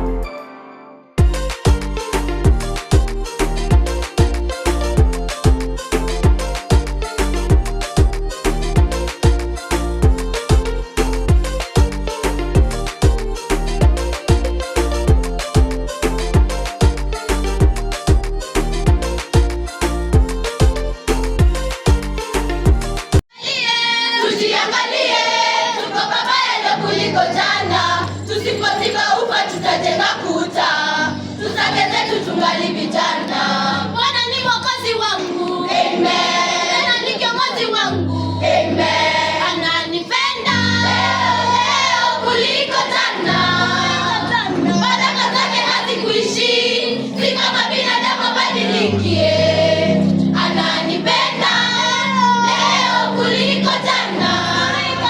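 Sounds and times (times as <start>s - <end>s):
steady bass line: 1.2s - 23.2s
choir singing: 23.4s - 34.2s, 35.0s - 55.0s.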